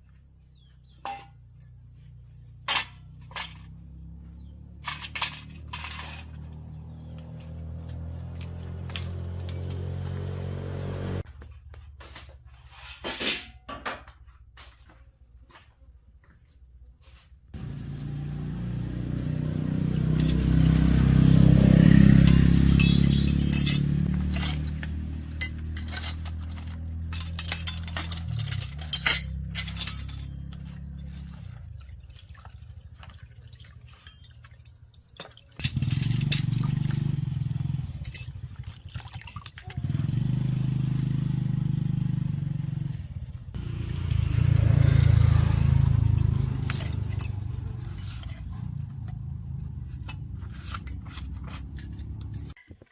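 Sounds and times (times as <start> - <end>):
engine running: 1.0 - 11.3, 17.6 - 34.7, 35.6 - 52.6
sharp metallic clinks: 19.6 - 32.4, 33.5 - 40.0, 43.5 - 52.6.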